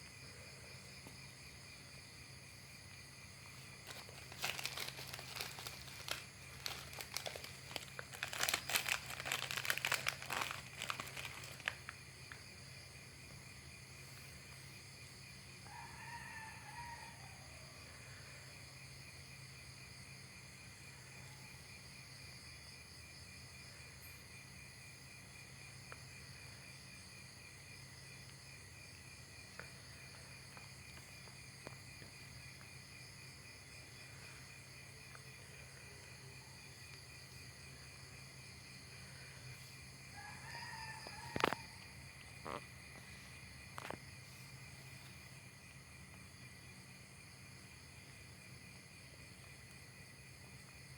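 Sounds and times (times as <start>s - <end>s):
insects trilling: 0.0s - 50.9s.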